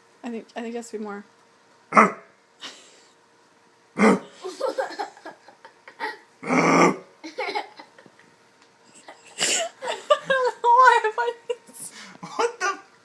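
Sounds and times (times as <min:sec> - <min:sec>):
man barking like a dog: 0:01.9 - 0:02.3, 0:04.0 - 0:04.3
man grunting: 0:04.0 - 0:04.4, 0:06.4 - 0:07.0.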